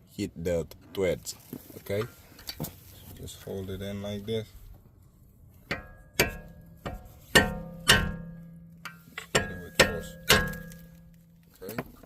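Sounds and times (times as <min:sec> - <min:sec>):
hammer striking metal screwdriver: 0:05.7 - 0:10.8.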